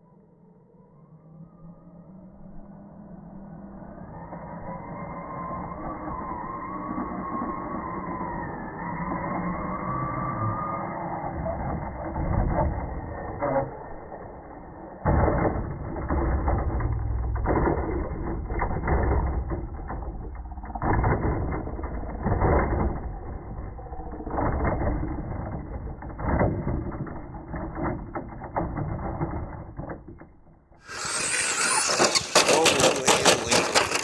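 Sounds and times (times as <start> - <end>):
toy truck motor whirring: 6.1 - 30.2, 30.8 - 34.0.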